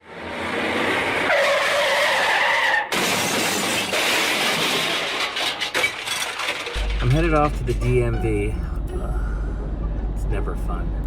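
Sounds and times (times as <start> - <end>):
car tyres screeching: 0.1 - 8.5
car crash: 0.2 - 8.4
debris scattering: 2.9 - 8.1
glass breaking: 2.9 - 8.1.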